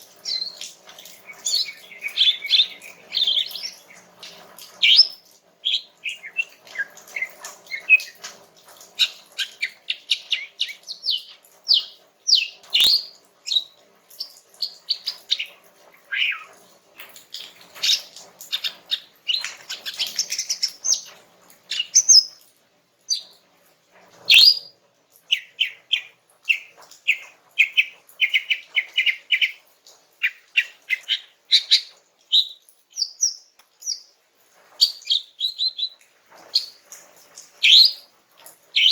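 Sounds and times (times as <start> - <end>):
bird singing chattering song: 0.2 - 8.2, 9.0 - 16.6, 21.7 - 22.4, 23.1 - 23.4, 25.3 - 29.6, 30.2 - 34.1, 34.8 - 36.0.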